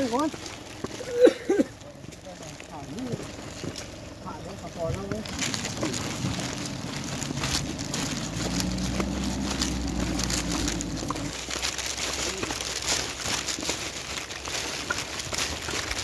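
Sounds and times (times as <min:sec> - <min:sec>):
car engine humming: 0:00.0 - 0:16.0
crackly rustling noise: 0:00.0 - 0:16.0.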